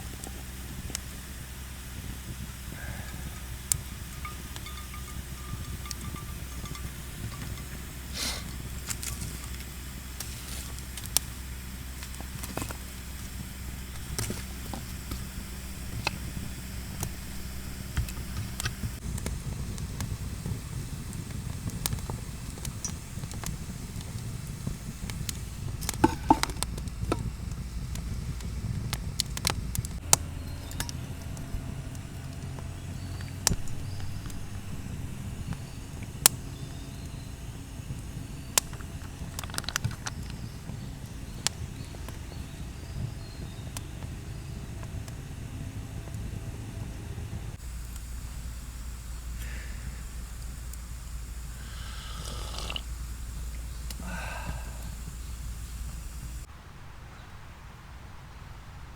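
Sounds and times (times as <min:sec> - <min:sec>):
low rumble: 0:00.0 - 0:51.6
campfire crackling and popping: 0:00.0 - 0:56.5
wavering pitched sound: 0:02.8 - 0:08.1.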